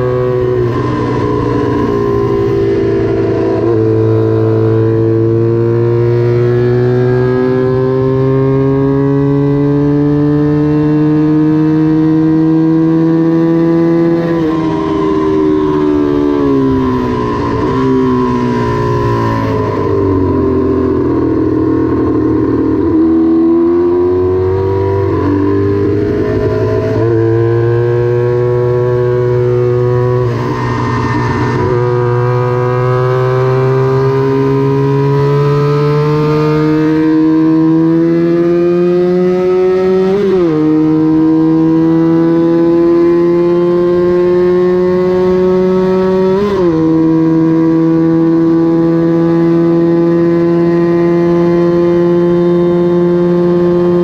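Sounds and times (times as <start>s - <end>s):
racing motorcycle engine revving: 0.0s - 54.0s.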